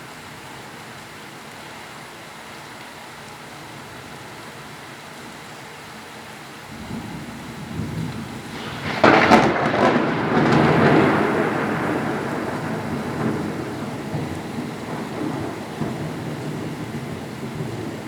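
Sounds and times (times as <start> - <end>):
heavy rain hiss: 0.0 - 18.0
thunder crack and rumble: 6.7 - 18.0.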